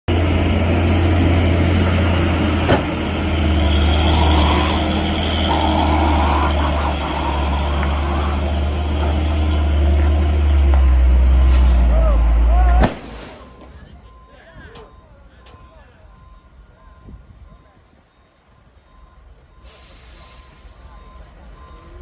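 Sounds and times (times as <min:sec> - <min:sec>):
heavy vehicle engine humming: 0:00.1 - 0:22.0
sharp crack: 0:12.7 - 0:13.8.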